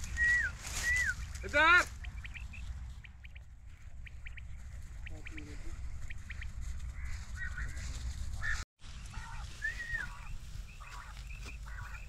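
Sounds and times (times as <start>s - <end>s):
birds calling: 0.0s - 12.0s
wind rumble on microphone: 0.0s - 12.0s.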